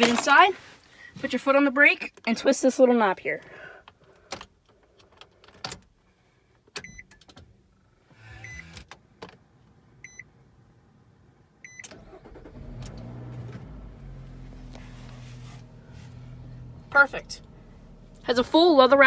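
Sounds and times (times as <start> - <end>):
car engine starting and idling: 7.6 - 9.2, 11.6 - 19.0
short electronic car beeps: 8.2 - 8.8, 10.0 - 10.3, 11.6 - 11.9.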